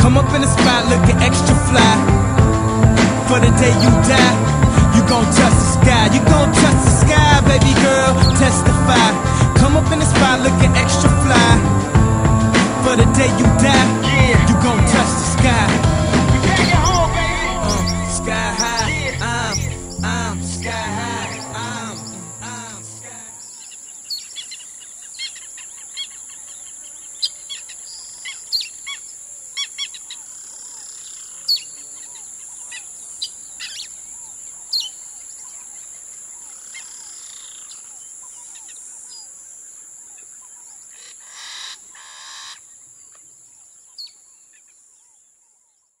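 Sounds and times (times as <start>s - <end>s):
music: 0.0s - 23.3s
high-pitched hiss: 0.0s - 25.7s
birds chirping: 0.0s - 46.0s.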